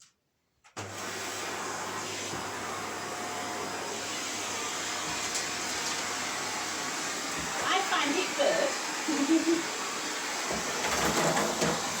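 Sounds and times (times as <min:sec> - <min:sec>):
vacuum cleaner running: 0:00.8 - 0:12.0.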